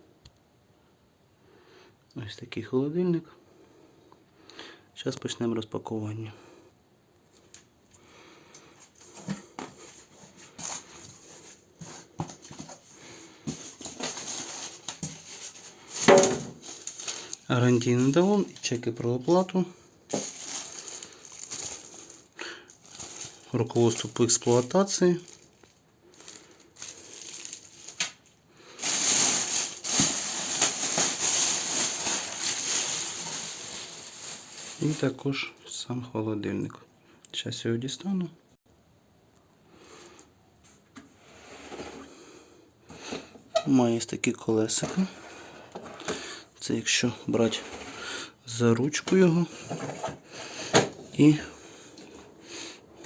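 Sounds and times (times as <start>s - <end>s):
cardboard packaging rustling: 8.8s - 35.2s.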